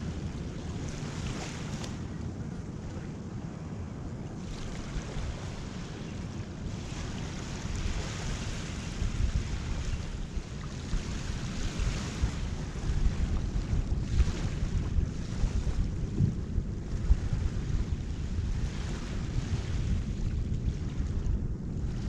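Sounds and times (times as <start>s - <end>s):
wind buffeting the microphone: 0.0s - 22.0s
surf washing up a beach: 4.3s - 22.0s.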